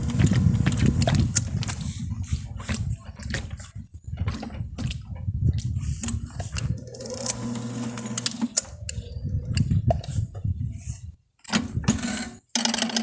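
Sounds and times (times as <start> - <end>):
drain cleaning machine motor hum: 0.0 - 1.5, 6.6 - 9.4.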